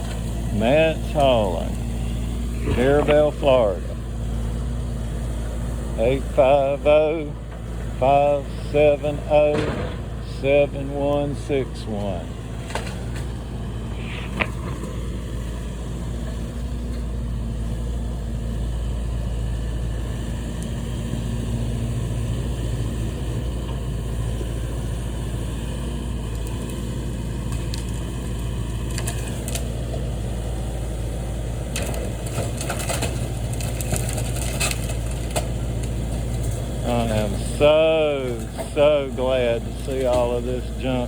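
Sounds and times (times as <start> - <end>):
heavy equipment engine running: 0.0 - 41.0
debris cracking and crunching: 27.5 - 29.8, 31.7 - 37.3.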